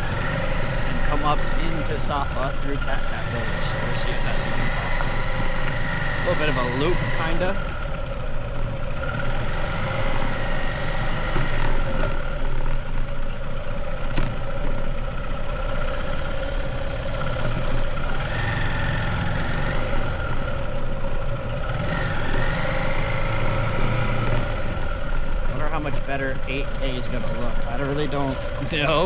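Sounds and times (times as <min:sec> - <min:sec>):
motorbike engine running: 0:00.0 - 0:29.0.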